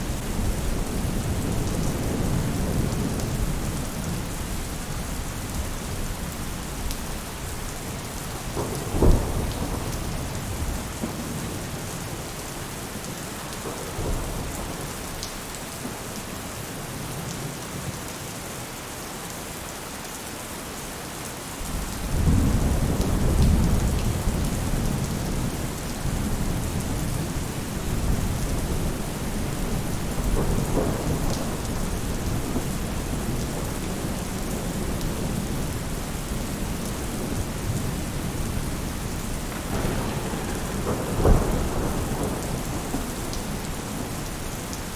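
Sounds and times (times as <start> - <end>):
thunder rumbling: 0.0 - 12.4, 21.6 - 44.9
rain on a roof: 0.0 - 44.9.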